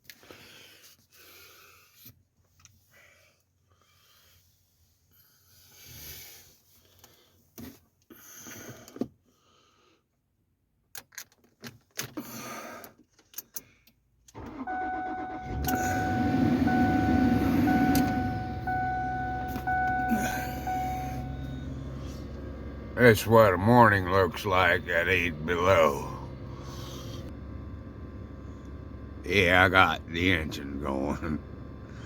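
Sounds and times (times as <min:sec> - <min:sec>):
car engine cranking and starting: 0:14.2 - 0:32.0
rustling inside car: 0:14.4 - 0:25.5
dashboard warning chime: 0:14.4 - 0:26.7.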